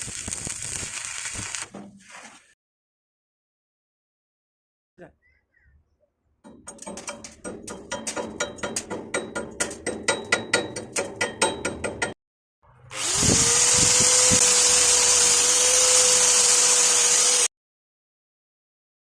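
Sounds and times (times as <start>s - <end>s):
power tool motor whining: 12.8s - 17.5s.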